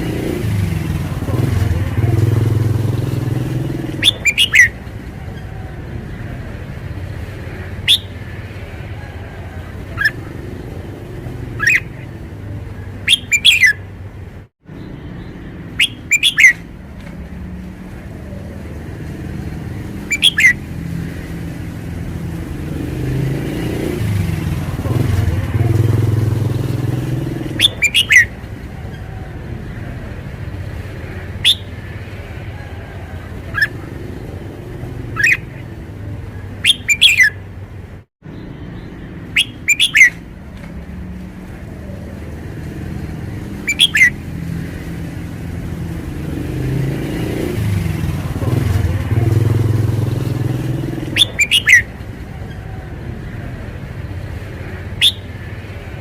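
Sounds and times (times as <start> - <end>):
low rumble of traffic: 0.0 - 56.0
vehicle passing: 0.0 - 56.0
bird singing bright phrases: 3.1 - 4.8, 7.8 - 8.4, 11.1 - 13.8, 14.7 - 16.7, 19.8 - 21.0, 25.8 - 29.0, 31.0 - 31.9, 36.5 - 37.4, 38.3 - 40.3, 43.3 - 44.9, 50.7 - 52.7, 54.6 - 55.4.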